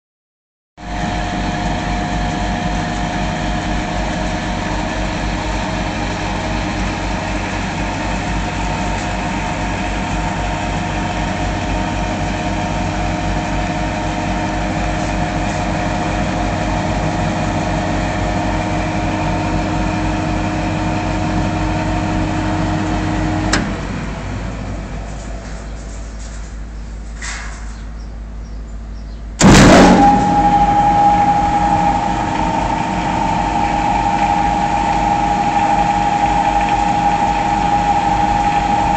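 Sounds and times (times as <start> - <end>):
washing machine motor hum: 0.8 - 24.7, 29.4 - 38.9
low churning pulse: 29.4 - 38.9.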